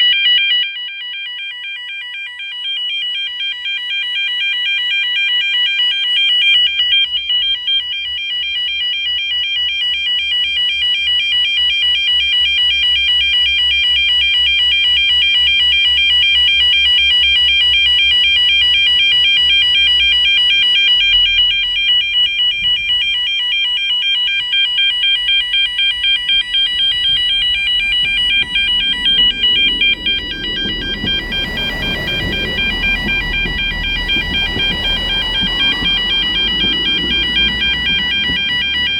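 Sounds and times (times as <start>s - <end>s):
level crossing alarm warbling: 19.5s - 38.9s
train rumble: 25.2s - 38.9s.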